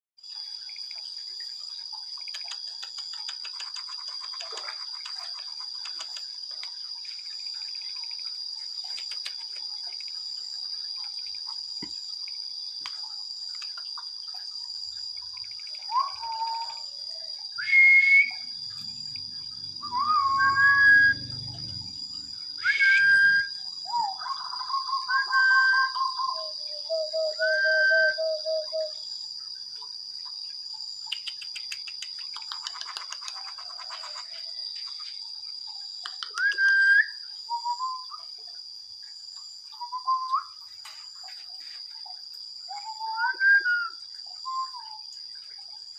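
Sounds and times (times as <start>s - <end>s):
parrot whistled calls: 19.9s - 21.3s, 22.6s - 28.9s.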